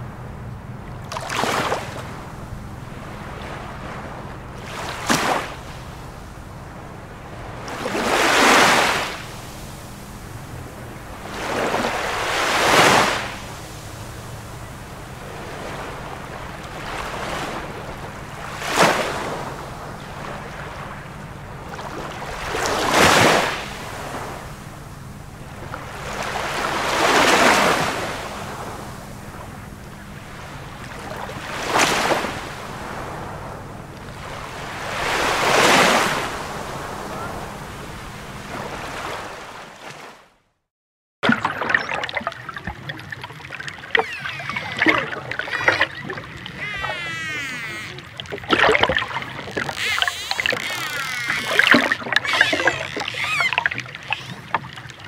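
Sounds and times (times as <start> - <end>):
ocean waves washing in: 0.0 - 40.5, 41.2 - 55.0.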